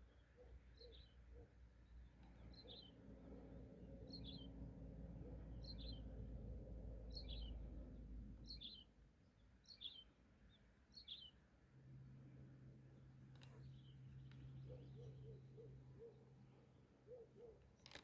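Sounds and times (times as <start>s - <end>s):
songbird chirping: 0.0s - 3.1s, 5.2s - 6.3s, 7.0s - 11.5s, 13.3s - 18.0s.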